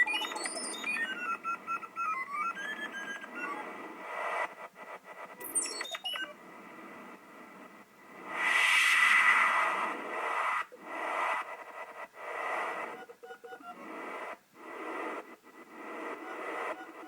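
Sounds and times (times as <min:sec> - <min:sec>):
synthesized bird chirps: 0:00.0 - 0:03.7
synthesized wind hissing: 0:08.2 - 0:11.5.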